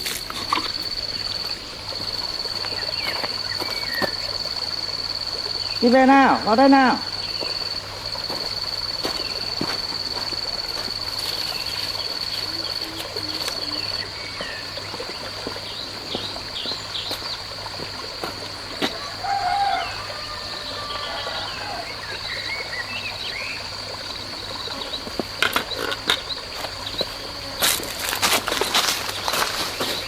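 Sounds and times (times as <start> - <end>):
high-pitched insect drone: 0.0 - 14.9.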